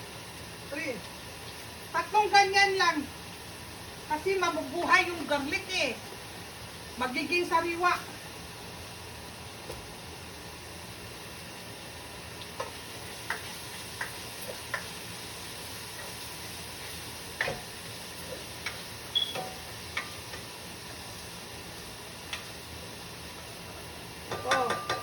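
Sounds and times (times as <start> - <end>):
food frying in oil: 0.0 - 25.0
utensil tapping cookware: 24.3 - 25.0.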